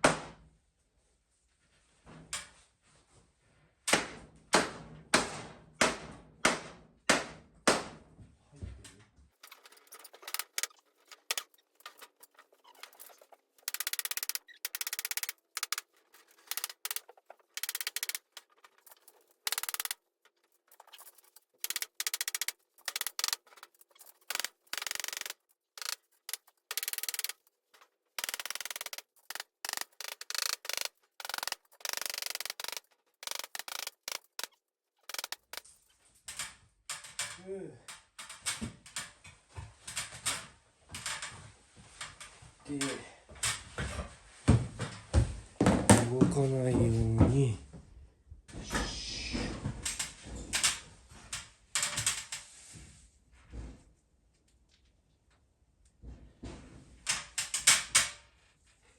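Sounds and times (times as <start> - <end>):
short clicks and scraping: 9.4 - 35.9.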